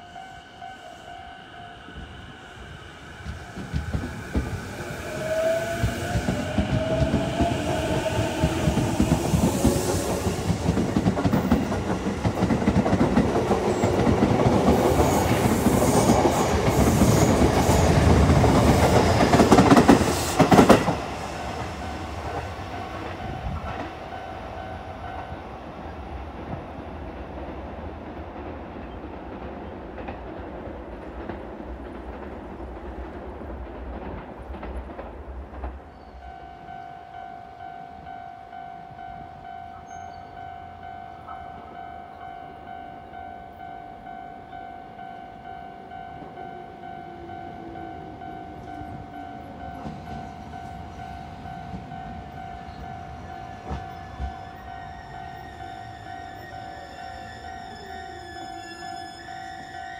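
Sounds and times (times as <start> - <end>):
electric train wheel clatter: 3.2 - 24.0, 46.2 - 58.5.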